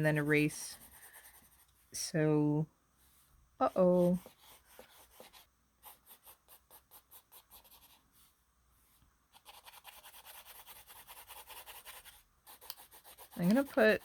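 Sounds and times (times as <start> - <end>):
pencil scratching on paper: 0.0 - 1.8, 3.6 - 8.3, 9.3 - 14.0.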